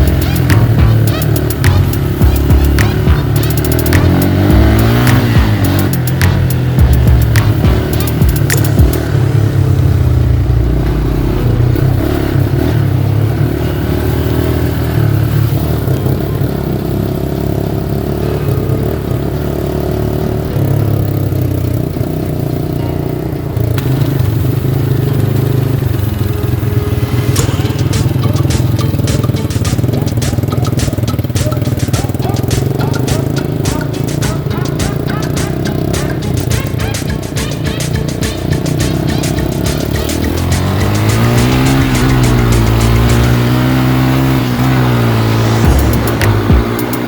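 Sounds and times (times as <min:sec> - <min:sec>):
rapid sharp ticks: 0:00.0 - 0:09.3, 0:27.1 - 0:47.0
background music: 0:00.0 - 0:09.8, 0:25.7 - 0:47.0
car engine running: 0:00.0 - 0:47.0.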